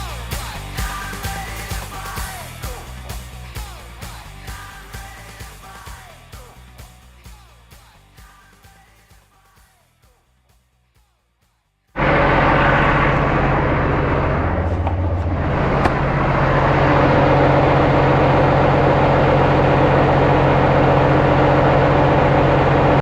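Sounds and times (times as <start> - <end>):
truck diesel engine running: 12.0 - 23.0.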